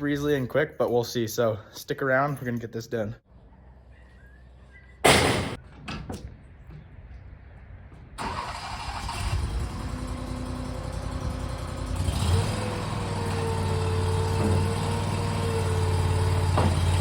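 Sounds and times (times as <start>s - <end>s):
loader engine starting and running: 8.1s - 17.0s.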